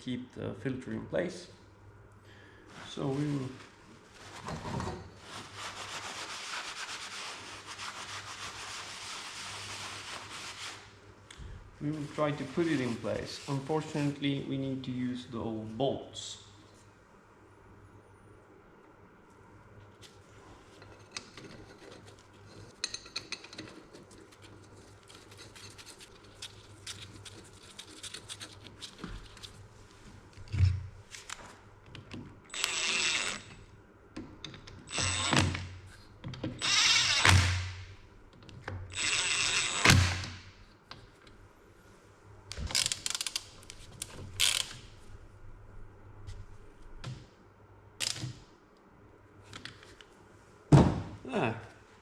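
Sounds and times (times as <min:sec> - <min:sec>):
tools clicking and scraping on metal: 0:20.8 - 0:29.5
small power tool running: 0:32.5 - 0:33.4
ratchet clicks: 0:32.5 - 0:33.5, 0:38.9 - 0:40.0.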